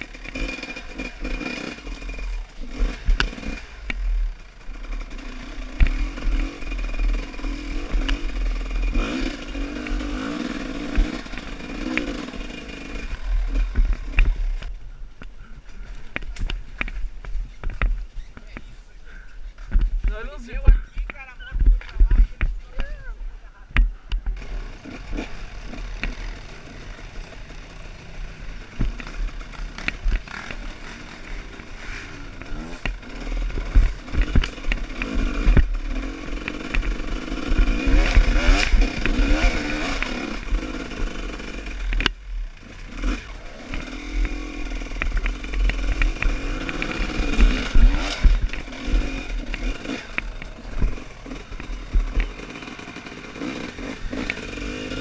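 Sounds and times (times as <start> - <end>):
motorcycle engine revving: 0.0 - 15.0, 15.6 - 55.0
knocks and clatter from motorcycle: 0.0 - 18.7, 19.5 - 23.0, 23.7 - 26.5, 27.2 - 55.0.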